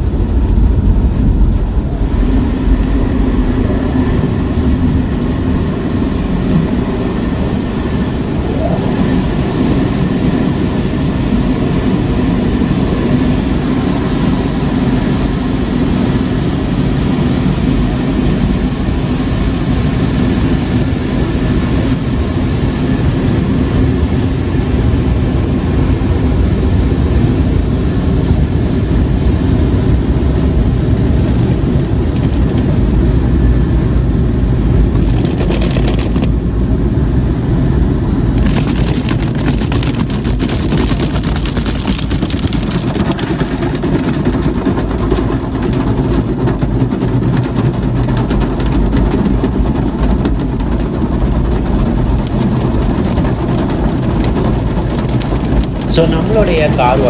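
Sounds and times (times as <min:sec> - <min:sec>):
dense rapid patter: 0:00.0 - 0:12.2, 0:34.6 - 0:36.4, 0:38.3 - 0:57.0
car wash machinery rumble: 0:00.0 - 0:57.0.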